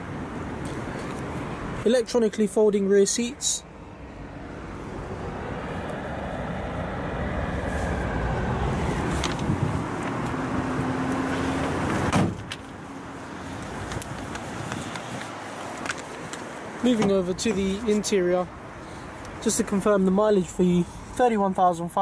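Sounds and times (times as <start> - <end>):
seat clunk: 11.2 - 12.7.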